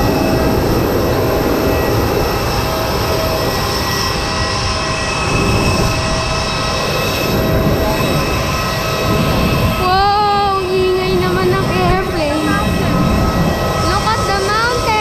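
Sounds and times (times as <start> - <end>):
jet engine whine: 0.0 - 15.0.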